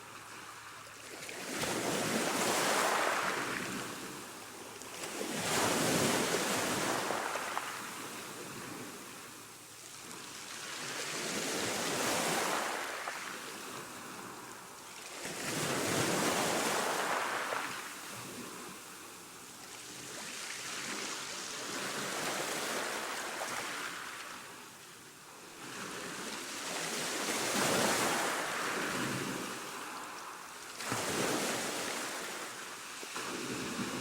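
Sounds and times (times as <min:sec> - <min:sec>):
ocean waves breaking: 0:01.3 - 0:04.3, 0:15.3 - 0:18.8.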